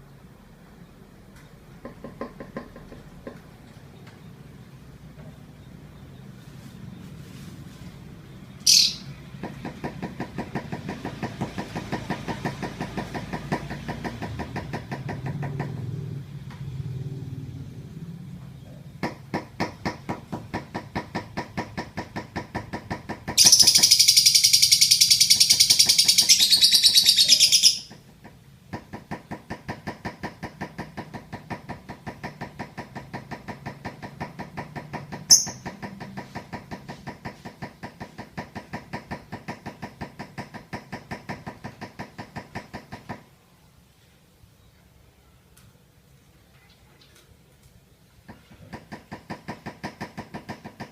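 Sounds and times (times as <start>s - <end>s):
rapid high bird trill: 8.6s - 9.1s, 23.4s - 27.9s, 35.3s - 35.6s
lovebird chirping: 8.6s - 9.2s, 23.4s - 27.9s, 35.3s - 35.6s.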